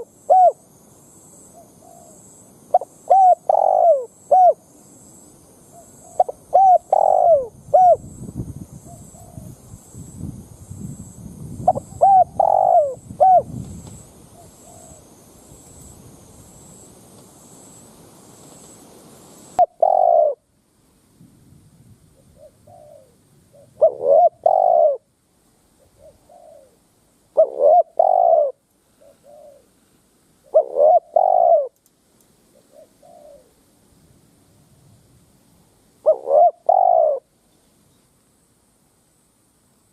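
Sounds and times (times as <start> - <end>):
dove cooing: 0.0 - 0.6, 1.5 - 4.6, 5.7 - 8.1, 8.8 - 9.6, 11.7 - 13.6, 14.3 - 15.1, 19.6 - 20.4, 22.2 - 25.1, 25.8 - 29.8, 30.4 - 31.8, 32.5 - 33.6, 36.0 - 37.3
background hiss and rumble: 0.0 - 39.9.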